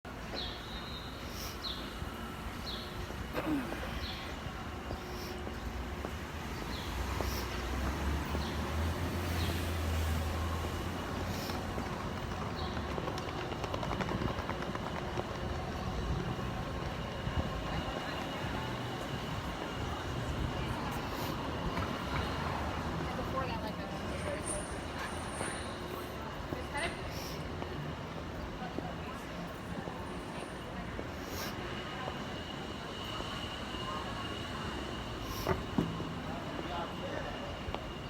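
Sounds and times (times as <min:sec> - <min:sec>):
traffic rumble and hiss: 0:00.1 - 0:38.0.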